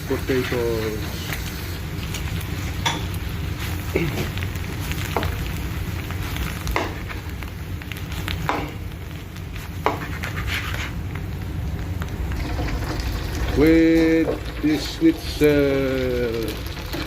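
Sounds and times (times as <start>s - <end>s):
potatoes sizzling in a pan: 0.0s - 17.0s
spatula scraping a pan: 9.8s - 11.0s.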